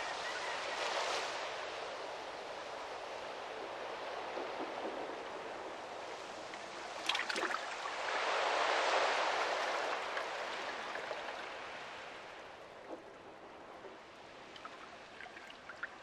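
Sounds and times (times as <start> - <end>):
sea water washing on shore: 3.8 - 16.0
sharp water splashes: 7.0 - 7.8.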